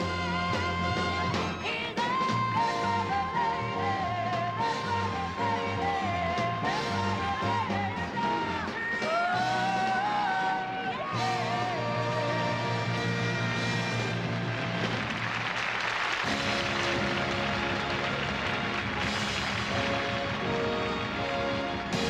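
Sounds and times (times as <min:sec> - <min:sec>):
orchestral accompaniment: 0:16.2 - 0:22.0.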